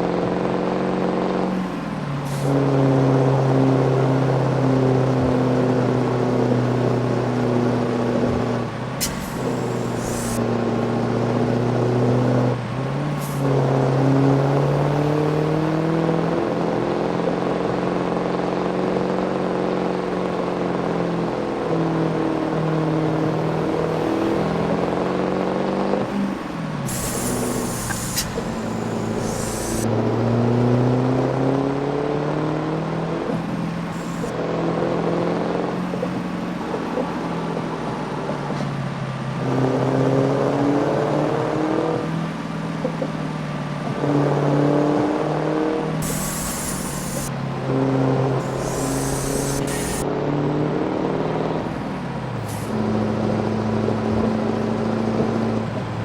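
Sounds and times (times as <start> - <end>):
diesel truck engine running: 0.0 - 39.4, 44.8 - 50.0
air hissing bursts: 9.0 - 10.4, 26.9 - 29.9, 46.0 - 47.4, 48.4 - 50.0.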